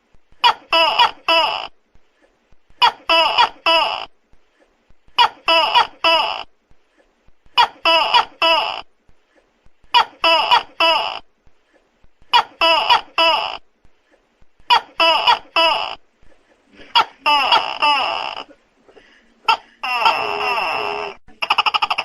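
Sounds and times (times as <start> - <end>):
gecko calling: 19.5 - 22.0.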